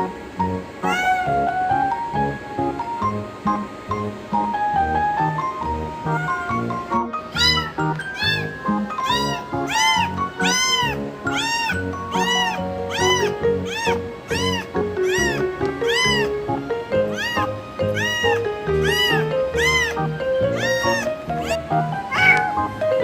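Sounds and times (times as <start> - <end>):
background music: 0.0 - 23.0
cat meowing: 0.8 - 1.7, 6.0 - 22.7.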